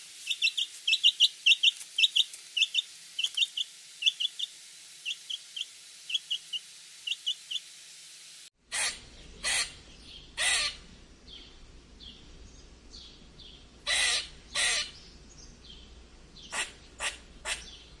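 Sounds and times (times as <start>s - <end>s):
faint high bird calls: 0.2s - 7.7s
harsh bird calls: 0.2s - 7.7s, 8.7s - 12.2s, 13.0s - 18.0s.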